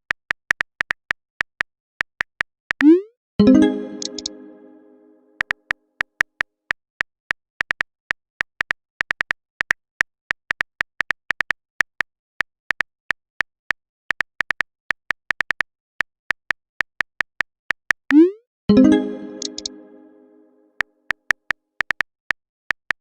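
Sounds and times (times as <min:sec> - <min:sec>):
keyboard typing clicks: 0:02.8 - 0:05.1, 0:18.1 - 0:20.5.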